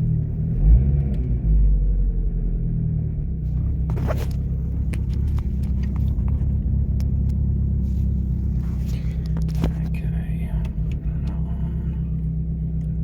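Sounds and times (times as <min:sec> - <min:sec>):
car engine drone from cabin: 0:00.0 - 0:13.0
brief rustle: 0:03.5 - 0:10.0.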